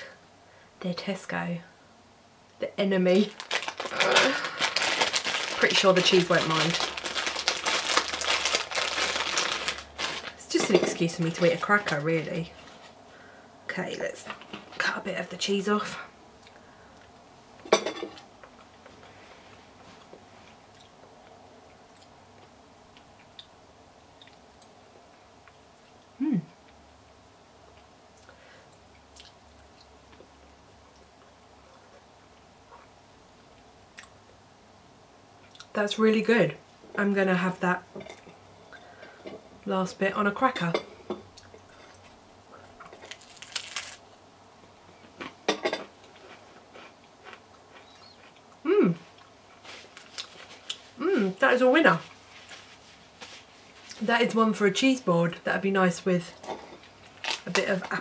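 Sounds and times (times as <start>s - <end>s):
cracker crunching while chewed: 3.3s - 10.4s, 41.4s - 44.0s, 46.1s - 50.9s, 57.1s - 57.6s
person chewing quietly: 18.4s - 24.8s, 25.4s - 34.2s, 46.0s - 51.1s.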